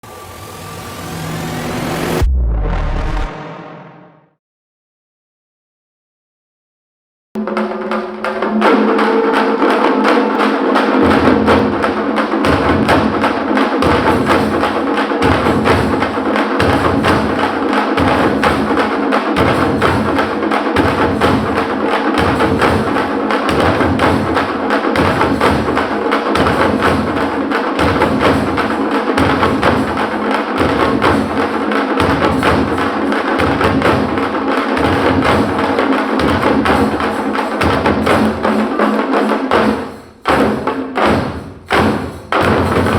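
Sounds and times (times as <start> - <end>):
deep drum strokes: 0.0 - 4.1
frame drums fast rhythm: 7.4 - 42.9.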